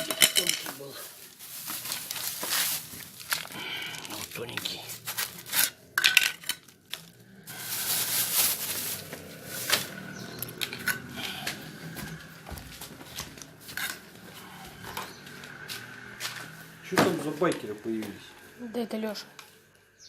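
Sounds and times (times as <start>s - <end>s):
angle grinder running: 6.9s - 20.0s.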